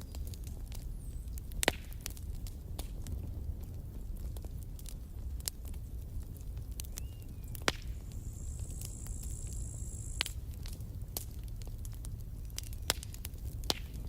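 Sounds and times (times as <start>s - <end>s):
campfire flames rumbling: 0.0s - 14.0s
wood crackling and popping: 0.0s - 14.0s
thin high hiss: 8.2s - 10.3s.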